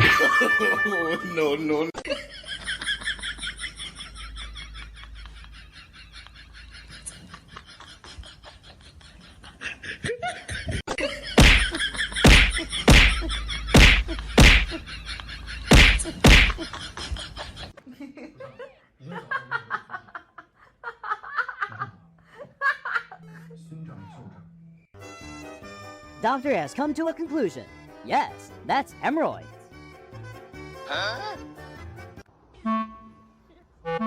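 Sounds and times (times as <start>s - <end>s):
loud sharp slaps: 11.4s - 14.8s, 15.7s - 16.6s.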